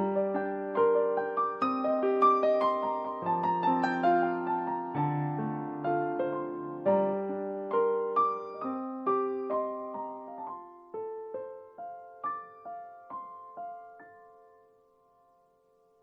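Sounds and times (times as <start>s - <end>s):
solo piano playing gentle notes: 0.0s - 16.0s.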